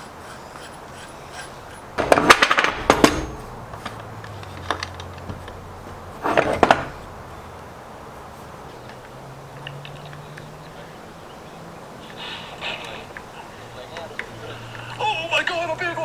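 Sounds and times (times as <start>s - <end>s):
hard objects knocking and clattering: 0.7s - 7.4s.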